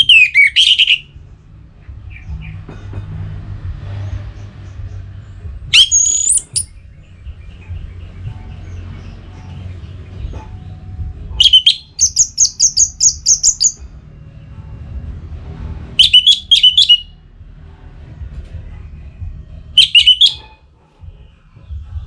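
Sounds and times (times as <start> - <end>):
thrush whistled song: 0.0 - 1.1, 5.7 - 6.8, 11.4 - 13.8, 16.0 - 17.2, 19.8 - 20.6
faint bird chirping: 5.8 - 10.8, 11.4 - 13.8.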